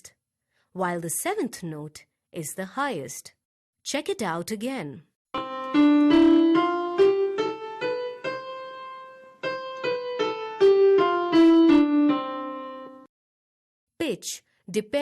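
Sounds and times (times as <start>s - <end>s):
keyboard playing a scale: 5.4s - 13.1s.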